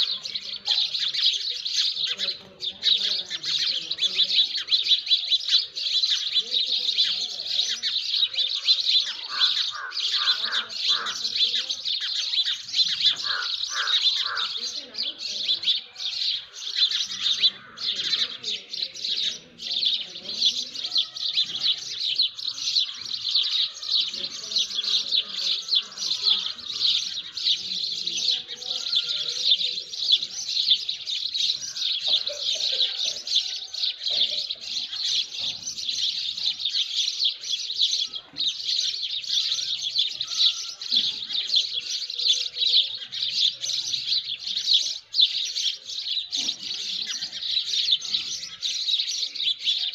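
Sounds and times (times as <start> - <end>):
small birds chirping: 0.0 - 49.9
low bird calls: 12.2 - 14.7.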